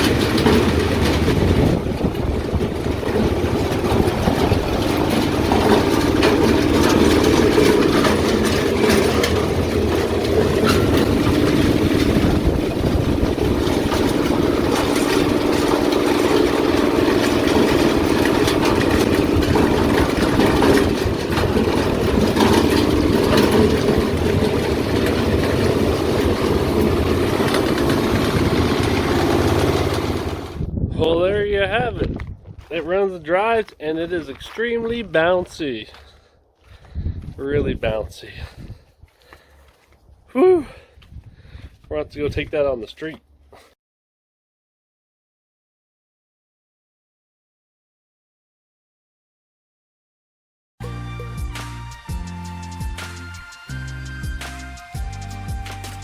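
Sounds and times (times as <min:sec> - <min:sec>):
car engine running: 0:00.0 - 0:30.7.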